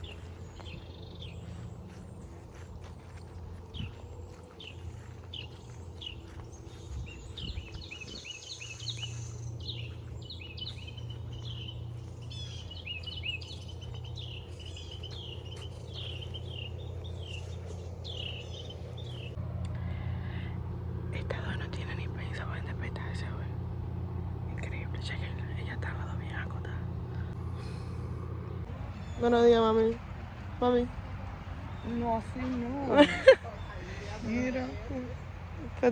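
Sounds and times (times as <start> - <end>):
birds chirping: 0.0 - 19.4
steady low hum: 0.0 - 35.9.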